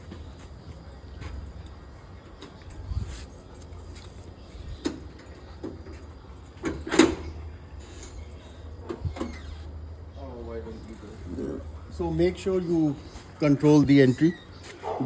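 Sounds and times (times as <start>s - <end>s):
door unlocking and opening: 6.6s - 9.6s.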